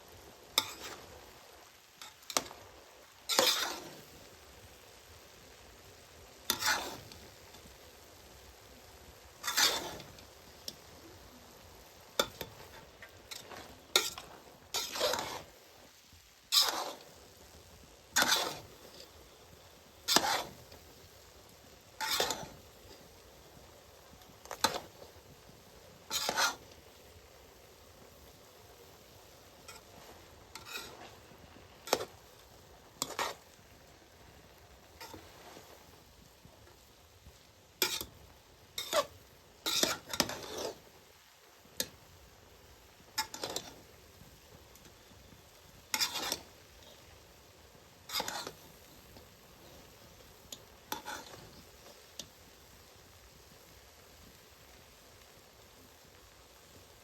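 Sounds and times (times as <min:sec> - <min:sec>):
faint sizzle: 0:00.0 - 0:57.0
ladle scraping a cooking pot: 0:00.6 - 0:01.2, 0:03.3 - 0:04.0, 0:06.5 - 0:07.2, 0:09.4 - 0:10.2, 0:12.2 - 0:15.5, 0:16.5 - 0:17.1, 0:18.2 - 0:19.4, 0:20.1 - 0:20.7, 0:22.0 - 0:23.0, 0:26.1 - 0:26.7, 0:29.6 - 0:33.5, 0:34.9 - 0:35.8, 0:37.8 - 0:38.2, 0:38.8 - 0:40.8, 0:43.2 - 0:43.8, 0:45.9 - 0:46.5, 0:48.1 - 0:48.6, 0:50.9 - 0:51.6.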